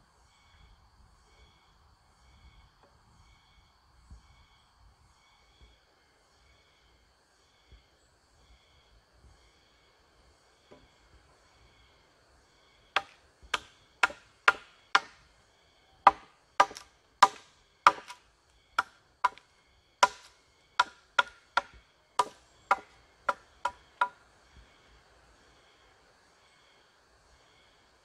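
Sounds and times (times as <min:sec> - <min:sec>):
tool striking wood: 0:13.0 - 0:15.2, 0:16.0 - 0:18.2, 0:18.8 - 0:24.2.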